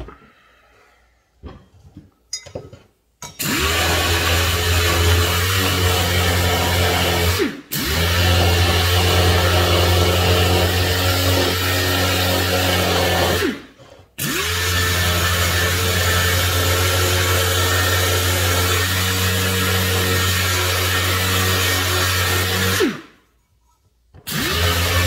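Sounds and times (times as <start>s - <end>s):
air sander running: 24.3s - 25.0s.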